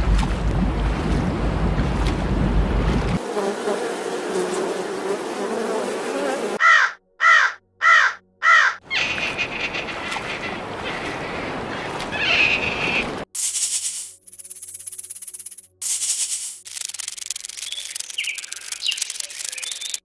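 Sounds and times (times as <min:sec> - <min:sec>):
crow cawing: 0:06.6 - 0:08.9.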